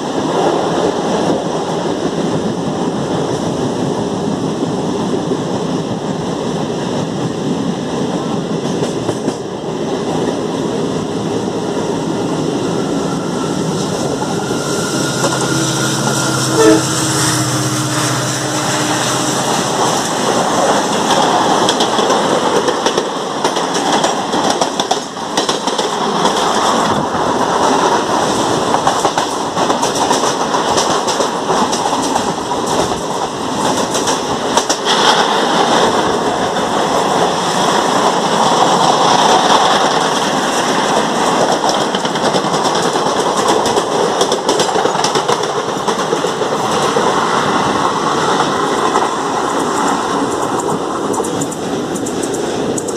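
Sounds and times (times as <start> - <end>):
passing train coaches: 0.0 - 52.9
train clatter and rumble: 0.0 - 52.9
wind rushing: 0.1 - 41.6
train horn: 12.5 - 20.8.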